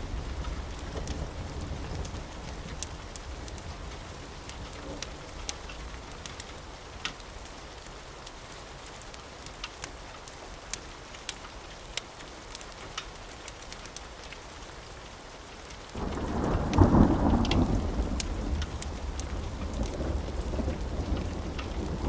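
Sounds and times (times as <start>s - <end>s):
rain falling: 0.0s - 22.0s
thunderclap rumbling: 16.0s - 22.0s.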